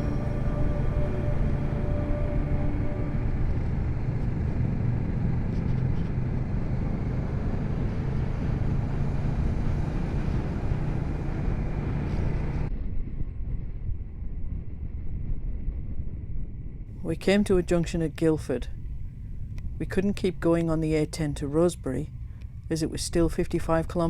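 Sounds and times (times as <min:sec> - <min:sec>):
motorcycle engine droning: 0:00.0 - 0:12.7
wind rush: 0:00.0 - 0:20.6.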